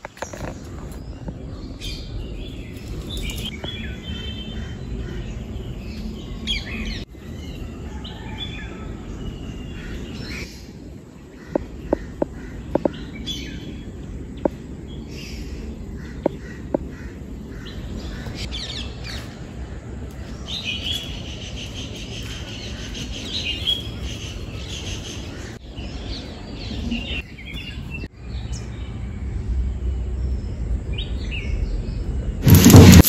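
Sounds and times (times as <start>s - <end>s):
small birds chirping: 0.0s - 8.3s, 9.0s - 33.0s.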